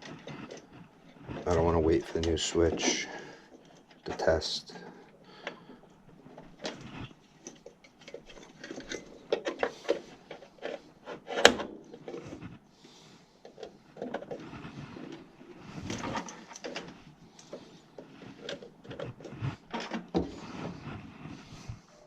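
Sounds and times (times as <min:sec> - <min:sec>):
metal parts clicking and rattling: 0:06.3 - 0:12.2.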